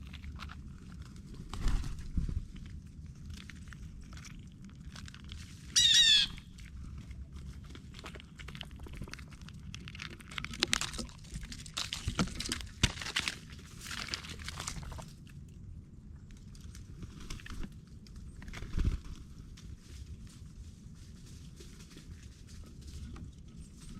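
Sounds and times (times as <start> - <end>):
rustling: 0.0 - 15.2
bird call of repeated notes: 5.8 - 6.4.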